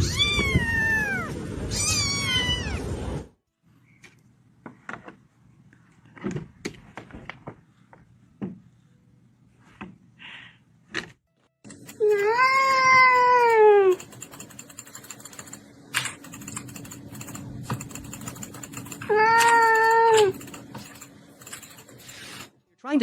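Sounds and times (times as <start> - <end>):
cat meowing loudly: 0.0 - 2.9.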